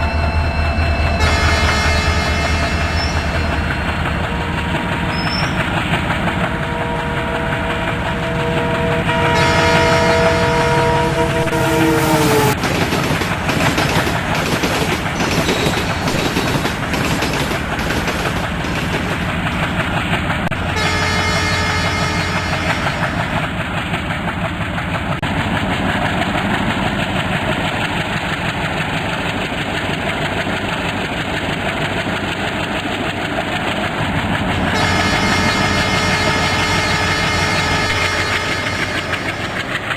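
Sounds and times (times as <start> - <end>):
train rumbling on rails: 0.0 - 39.9
train horn: 1.1 - 12.6, 20.5 - 23.4, 34.5 - 39.9
wheels clattering over rail joints: 1.2 - 39.9.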